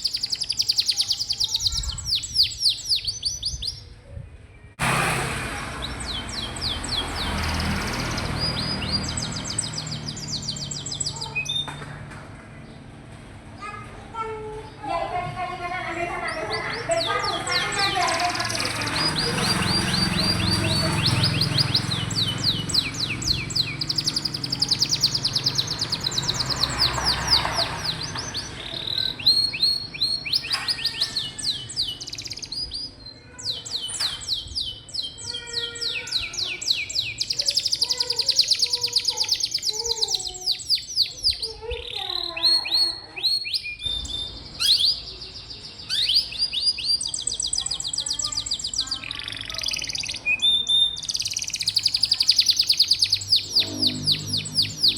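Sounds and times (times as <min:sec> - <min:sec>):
canary singing trills: 0:00.0 - 0:05.0, 0:05.7 - 0:11.8, 0:15.5 - 0:54.9
low rumble: 0:04.8 - 0:10.3.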